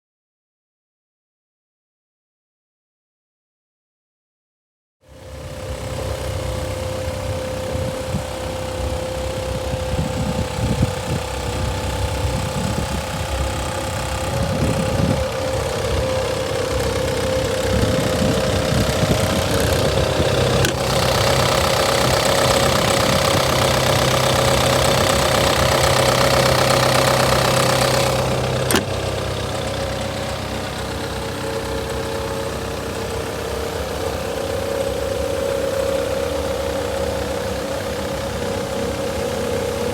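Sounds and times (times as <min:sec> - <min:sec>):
diesel engine running with whine: 0:05.1 - 0:39.9
sharp click: 0:20.6 - 0:21.2, 0:28.6 - 0:29.1.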